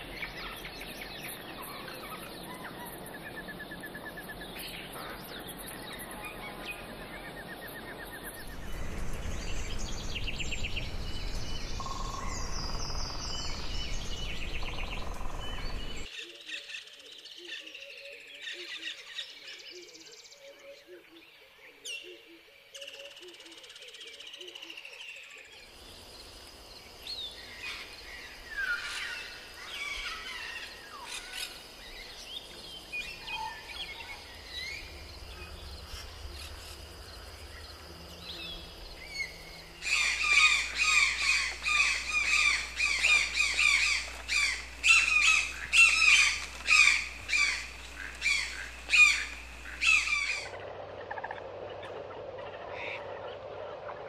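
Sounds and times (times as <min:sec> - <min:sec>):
birds chirping and calling: 0:00.0 - 0:16.1, 0:27.0 - 0:54.0
steady high drone: 0:33.1 - 0:54.0
loud rapid bird call: 0:39.8 - 0:50.6.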